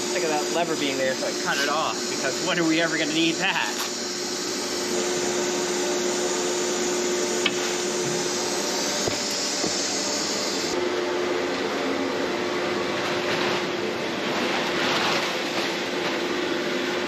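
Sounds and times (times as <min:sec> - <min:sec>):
machinery humming: 0:00.0 - 0:17.0
machinery hiss: 0:07.4 - 0:10.8.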